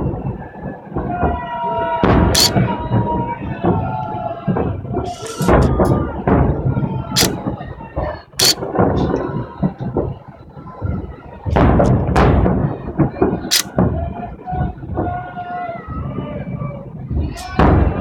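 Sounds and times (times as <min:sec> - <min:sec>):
fireworks booming: 0:00.0 - 0:18.0
fireworks sharp cracks: 0:02.0 - 0:10.2, 0:10.9 - 0:15.0.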